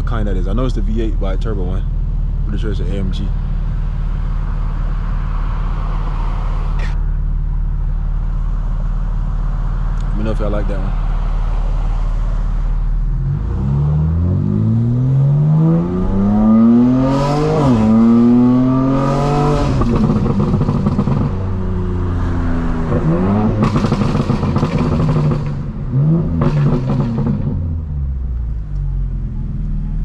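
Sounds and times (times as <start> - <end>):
car engine accelerating: 0.0 - 30.0
exhaust crackles and pops: 16.8 - 21.5, 22.8 - 27.8.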